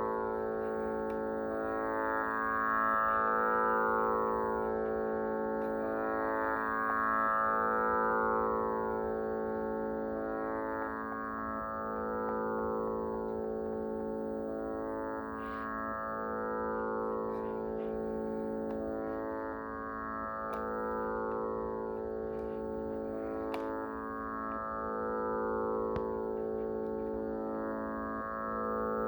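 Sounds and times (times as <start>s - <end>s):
tanpura drone: 0.0s - 29.0s.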